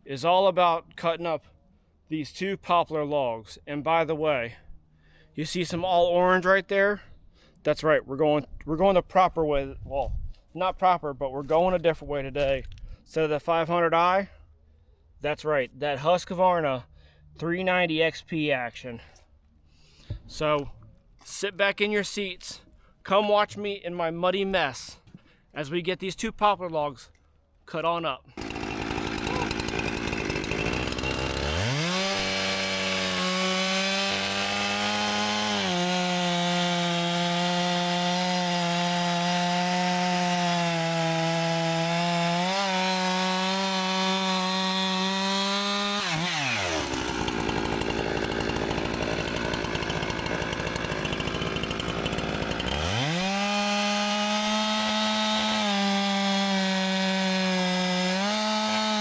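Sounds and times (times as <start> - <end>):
chainsaw cutting log: 28.4 - 59.0.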